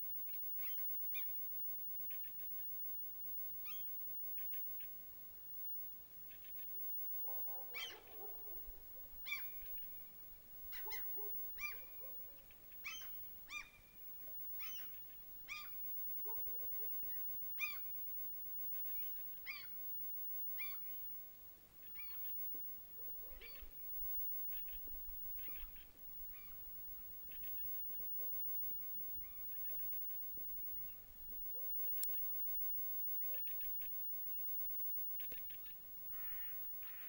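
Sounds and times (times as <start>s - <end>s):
short clear bird calls: 0.3s - 1.3s, 24.4s - 26.6s, 33.2s - 34.4s, 35.2s - 37.0s
faint bird calls: 0.3s - 1.4s, 2.0s - 2.8s, 3.6s - 5.0s, 6.2s - 18.0s, 18.6s - 19.8s, 20.6s - 21.1s, 21.8s - 34.5s, 35.1s - 37.0s.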